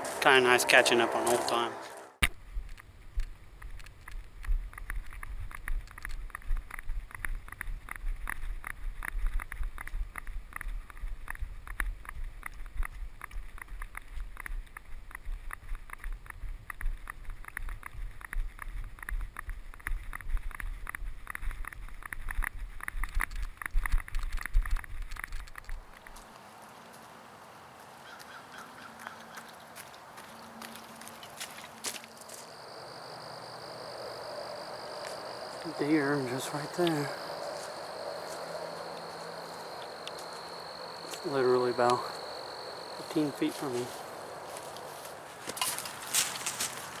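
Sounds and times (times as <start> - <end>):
footsteps crunching on trail: 0.0 - 2.3, 25.7 - 47.0
wind rumble on microphone: 0.0 - 25.9, 32.6 - 41.2.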